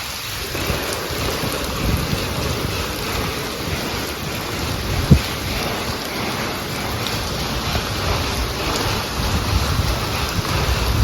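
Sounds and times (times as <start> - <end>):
heavy rain pouring: 0.0 - 11.0
dull thump: 5.1 - 5.3.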